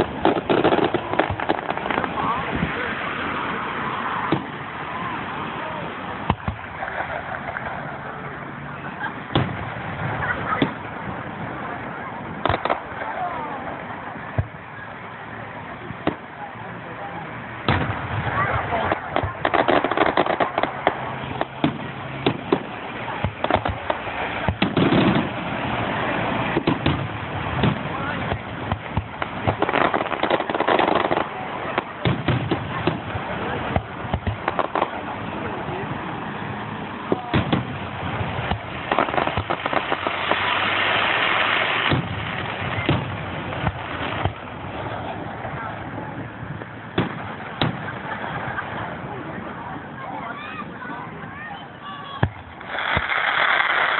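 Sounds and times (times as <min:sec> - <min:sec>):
fireworks crackling bangs: 0:00.0 - 0:53.9
deep rumbling firework boom: 0:17.7 - 0:35.0, 0:37.1 - 0:48.2.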